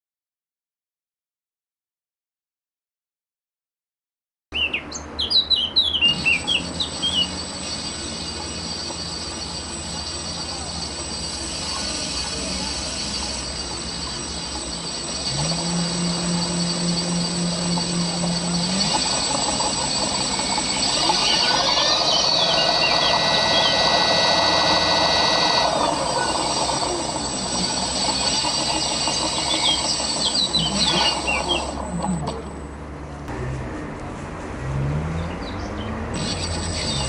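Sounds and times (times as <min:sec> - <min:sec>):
birds chirping: 0:04.6 - 0:15.4, 0:16.0 - 0:32.6
electric motor whining: 0:06.0 - 0:32.9, 0:36.0 - 0:37.0.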